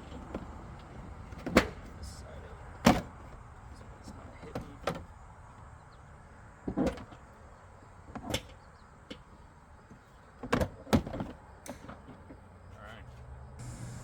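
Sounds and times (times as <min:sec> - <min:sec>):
hard plastic knocks and clunks: 0:00.1 - 0:02.0, 0:02.8 - 0:05.1, 0:06.6 - 0:07.3, 0:09.9 - 0:12.4.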